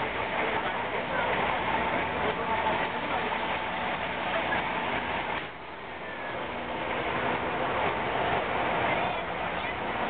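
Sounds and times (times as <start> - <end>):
heavy truck diesel engine running: 0.0 - 10.0.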